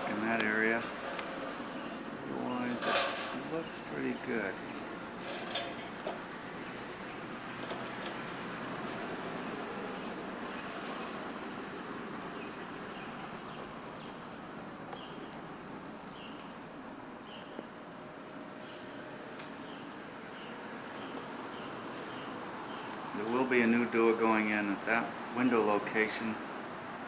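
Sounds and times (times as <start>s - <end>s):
cricket chirping: 0.0s - 27.0s.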